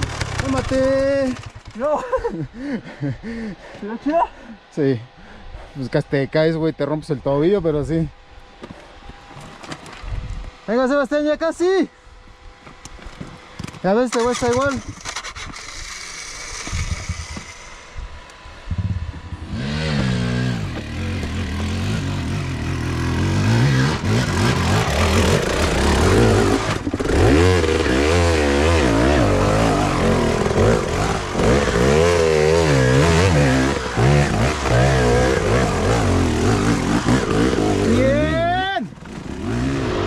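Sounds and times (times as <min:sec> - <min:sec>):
dirt bike engine revving: 0:00.0 - 0:02.6, 0:13.6 - 0:40.0.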